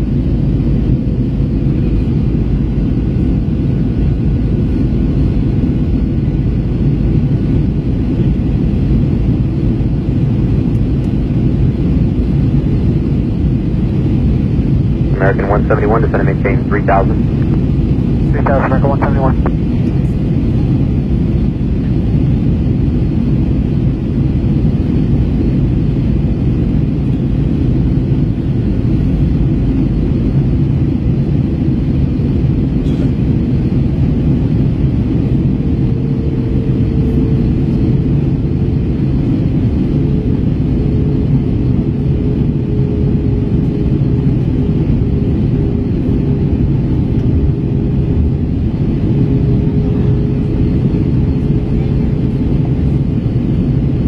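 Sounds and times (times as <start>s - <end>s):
airliner cabin engine rumble: 0.0s - 54.0s
faint steady hum: 15.0s - 20.1s.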